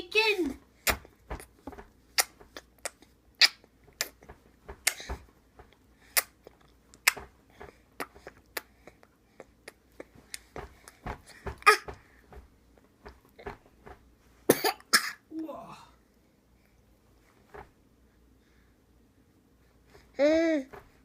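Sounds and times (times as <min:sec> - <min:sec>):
baby eating mouth smacks: 0:02.1 - 0:05.1, 0:06.1 - 0:11.0.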